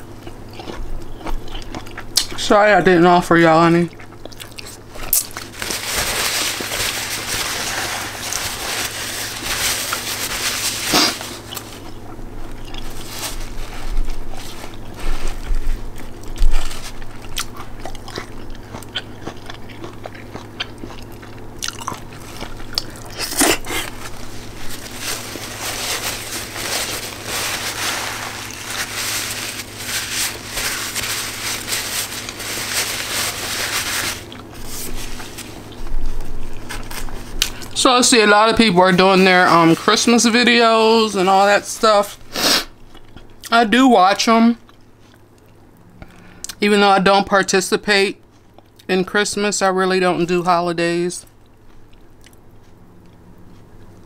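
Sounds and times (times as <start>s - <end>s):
person chewing and biting food: 0.0s - 2.4s, 3.9s - 37.8s, 42.4s - 43.5s.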